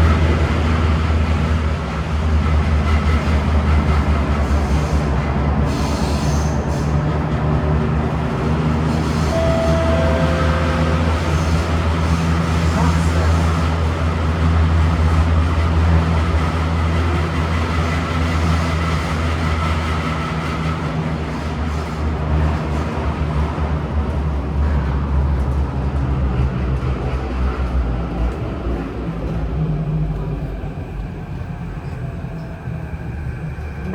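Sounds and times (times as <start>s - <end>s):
metro car rumbling: 0.0s - 33.9s
whine: 9.3s - 12.4s.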